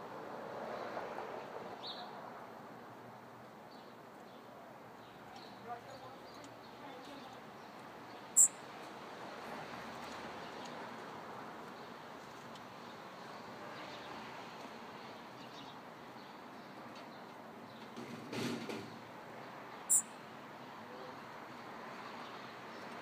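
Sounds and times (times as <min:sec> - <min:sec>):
bird chip calls: 0:08.4 - 0:08.6, 0:19.9 - 0:20.1.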